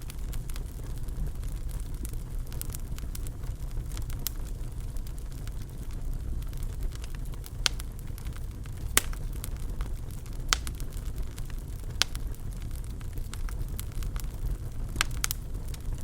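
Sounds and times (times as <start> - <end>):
fireplace fire crackling: 0.0 - 16.0
sharp pops of fire: 6.5 - 16.0.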